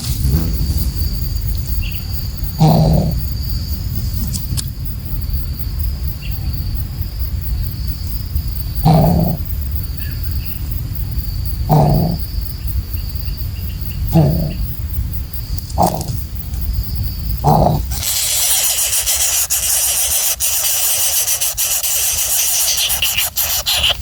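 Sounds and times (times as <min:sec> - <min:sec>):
insects droning: 0:00.0 - 0:24.0
bird giving deep low hoots: 0:02.5 - 0:03.2.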